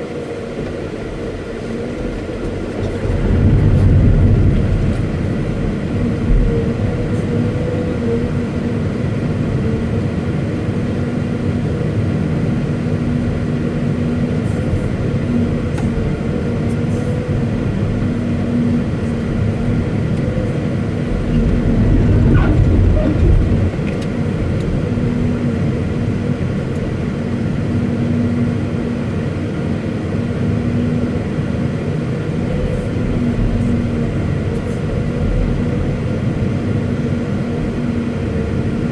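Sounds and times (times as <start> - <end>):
excavator diesel engine hum: 0.7 - 27.0.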